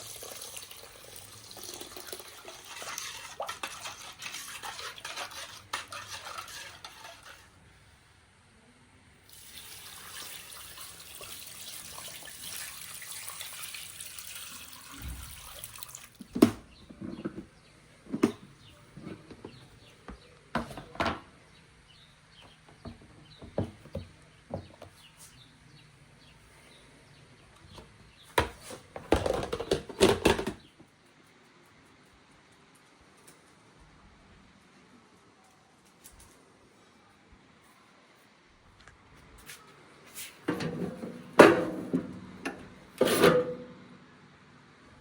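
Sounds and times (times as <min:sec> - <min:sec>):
water running from a tap: 0:00.0 - 0:05.0, 0:09.3 - 0:16.2
kitchen things clattering: 0:28.4 - 0:30.6, 0:40.3 - 0:43.8.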